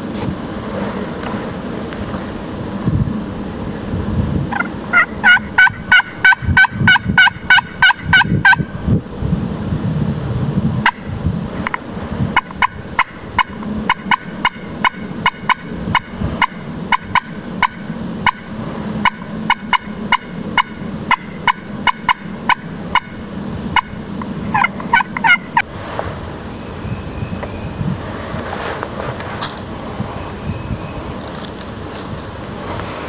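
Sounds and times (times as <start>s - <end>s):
turkey yelping: 4.5s - 8.7s, 12.4s - 25.6s.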